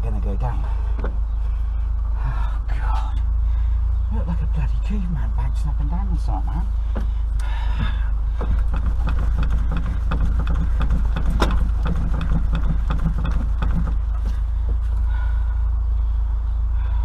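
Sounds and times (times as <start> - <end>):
low rumble: 0.0 - 17.0
car body knocking and creaking: 0.8 - 1.6, 6.7 - 15.1.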